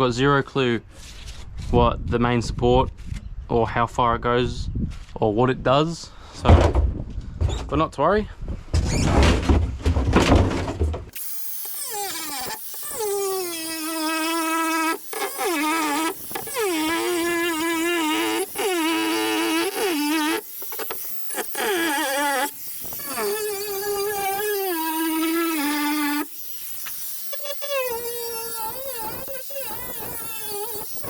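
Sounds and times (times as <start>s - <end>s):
angle grinder cutting sheet metal: 11.1s - 31.0s.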